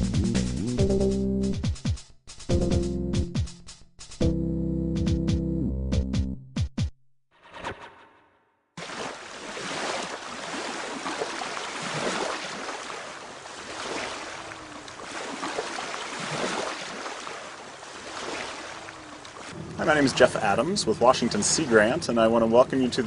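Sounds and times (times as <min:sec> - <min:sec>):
small waves washing onto beach: 0:08.8 - 0:23.0.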